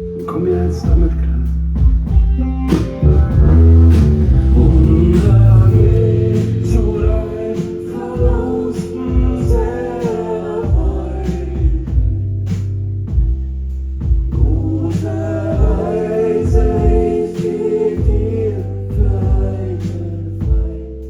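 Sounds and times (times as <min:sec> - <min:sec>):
drums: 0:00.0 - 0:20.9
bass: 0:00.0 - 0:21.0
held chords: 0:00.0 - 0:21.0
person singing: 0:02.7 - 0:12.2, 0:14.4 - 0:21.0.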